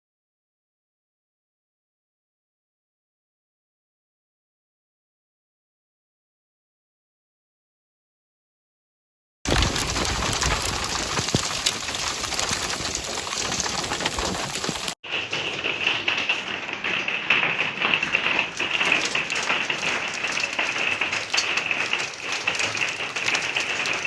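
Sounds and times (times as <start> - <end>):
hailstones tapping: 9.5 - 24.0
rain and hail on hard surfaces: 9.5 - 24.0.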